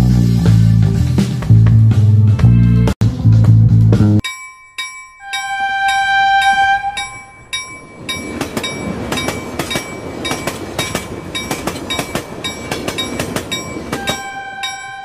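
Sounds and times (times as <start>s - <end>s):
train rumbling: 5.2s - 15.0s
wheels clacking over rail joints: 5.8s - 15.0s.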